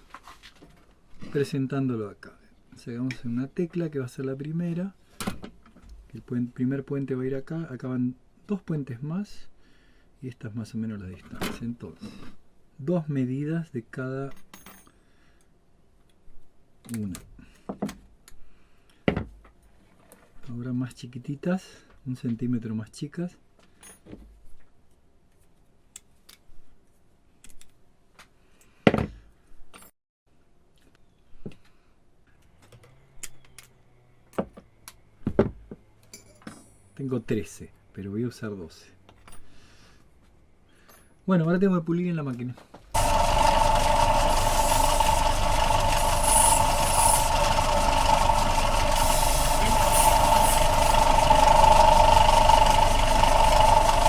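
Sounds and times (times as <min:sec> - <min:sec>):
short high hisses: 0:43.0 - 0:52.8
polishing machine whine: 0:43.0 - 0:54.0.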